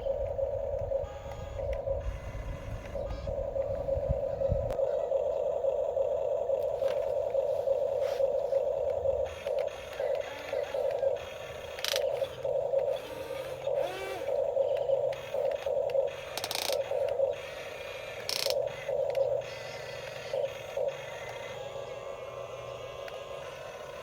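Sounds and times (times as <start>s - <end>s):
small electric motors whirring: 0.0s - 5.1s, 6.5s - 24.0s
sharp clicks: 8.2s - 21.6s.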